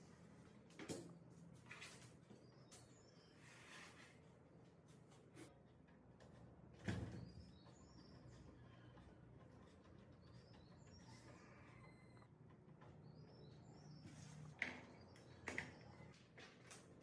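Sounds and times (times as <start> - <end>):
faint high bird chirps: 7.2 - 12.3.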